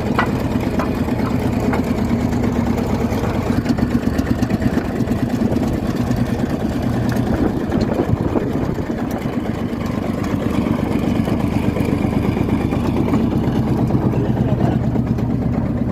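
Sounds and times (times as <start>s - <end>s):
tractor diesel engine idling: 0.0s - 15.9s.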